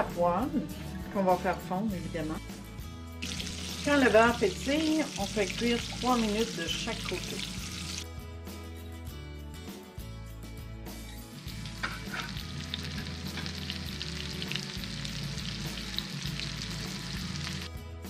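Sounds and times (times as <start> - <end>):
food sizzling in a frying pan: 3.2 - 8.0, 11.4 - 17.7.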